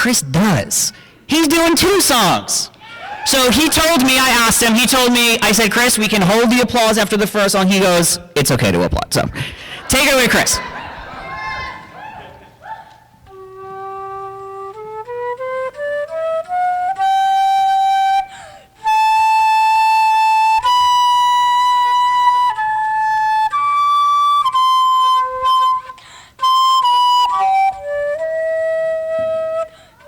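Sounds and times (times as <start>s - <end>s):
solo flute melody: 13.2s - 30.0s.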